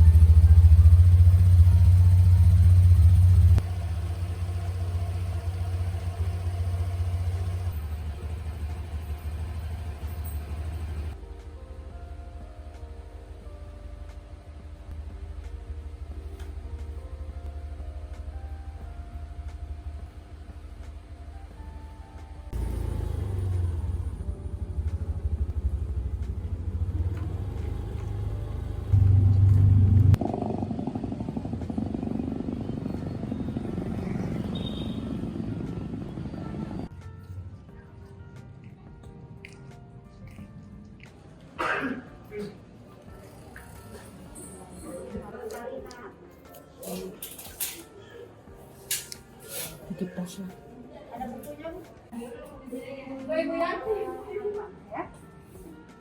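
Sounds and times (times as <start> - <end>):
vehicle engine rumbling: 0.0 - 11.4, 14.5 - 37.6.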